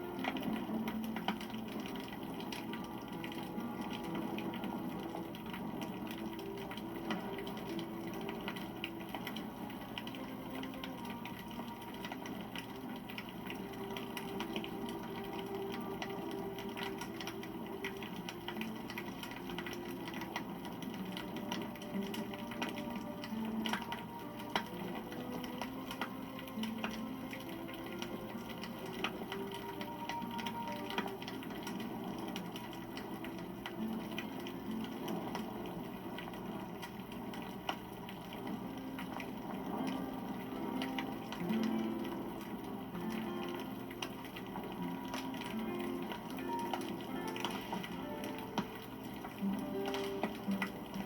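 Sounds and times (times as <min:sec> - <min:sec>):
campfire crackling and popping: 0:00.0 - 0:51.0
flames rustling: 0:00.0 - 0:51.0.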